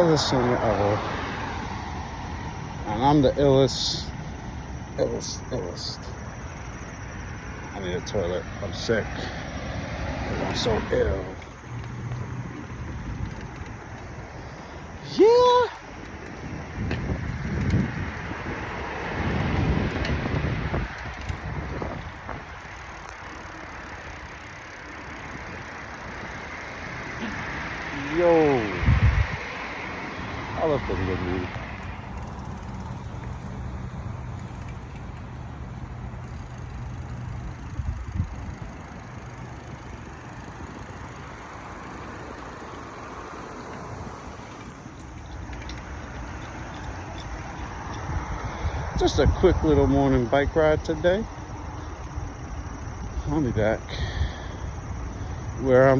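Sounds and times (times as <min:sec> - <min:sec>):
passing cars: 0:00.0 - 0:55.9
wind buffeting microphone: 0:09.7 - 0:23.1, 0:27.5 - 0:30.9, 0:37.3 - 0:41.9, 0:44.8 - 0:55.6.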